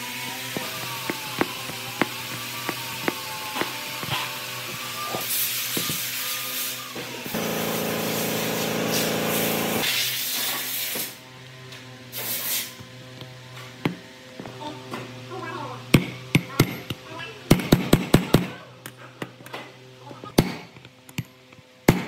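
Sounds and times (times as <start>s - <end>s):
motor running: 7.2s - 9.9s
hiss of spray or blown air: 8.1s - 11.0s.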